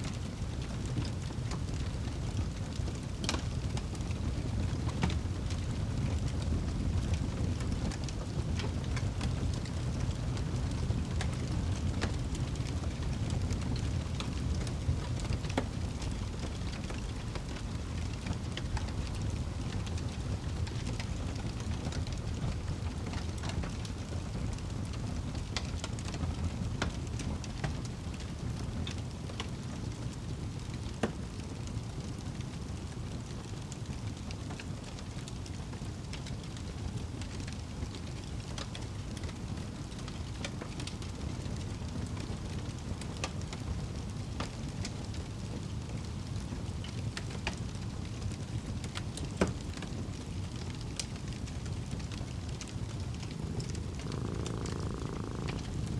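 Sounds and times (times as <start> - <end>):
wood fire crackling: 39.2 - 55.9
fire popping and snapping: 48.9 - 55.9
low steady rumble: 52.0 - 55.9.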